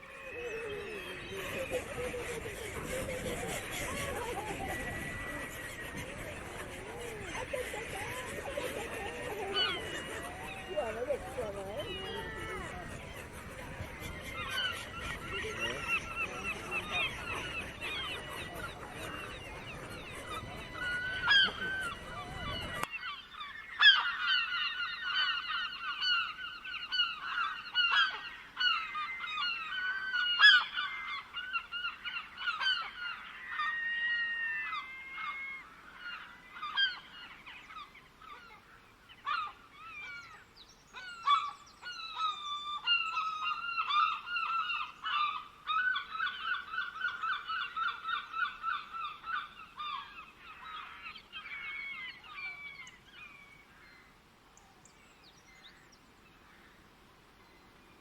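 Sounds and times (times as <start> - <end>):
birds chattering chorus: 0.0 - 23.2.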